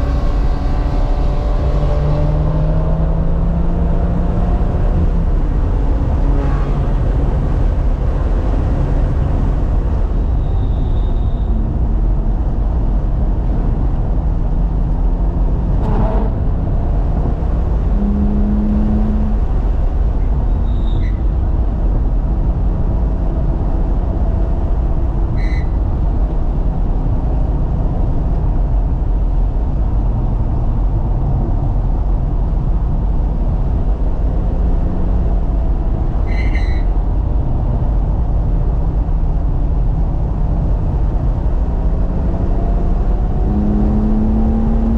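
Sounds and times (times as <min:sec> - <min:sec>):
road and wind rumble: 0:00.0 - 0:44.9
car engine revving: 0:15.1 - 0:20.1, 0:41.3 - 0:44.9.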